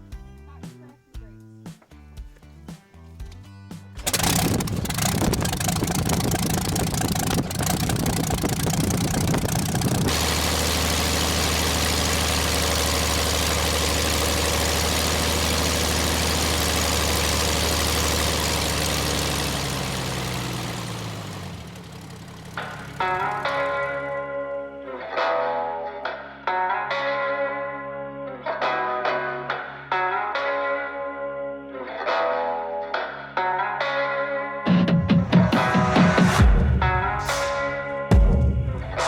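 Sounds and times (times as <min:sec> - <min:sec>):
aircraft engine running: 0:04.0 - 0:24.2.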